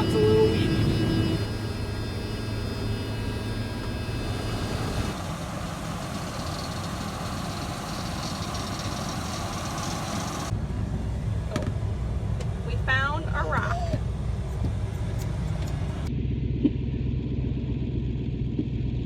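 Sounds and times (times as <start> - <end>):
machine whine: 0.0 - 11.0
combine harvester engine drone: 0.0 - 19.0.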